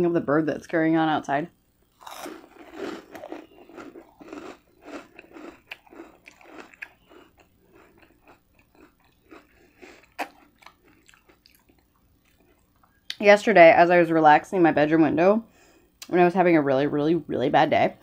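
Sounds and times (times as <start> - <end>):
crunchy chewing: 1.9 - 13.2
wet mouth sounds: 3.0 - 11.8.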